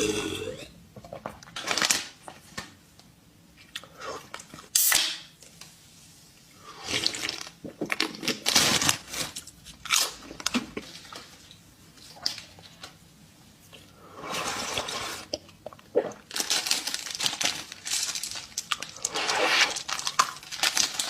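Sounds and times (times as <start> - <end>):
chewing crunchy sweets: 14.6 - 21.0.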